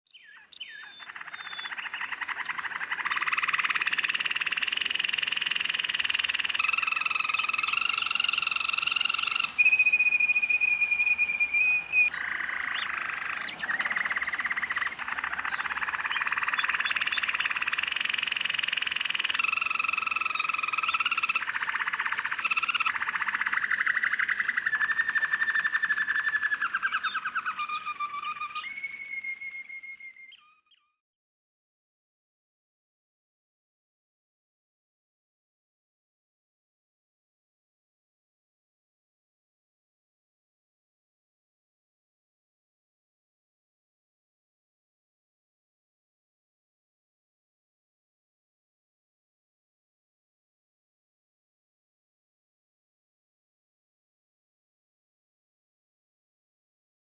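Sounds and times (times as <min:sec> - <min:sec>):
canary singing rolling trills: 0:00.1 - 0:31.0.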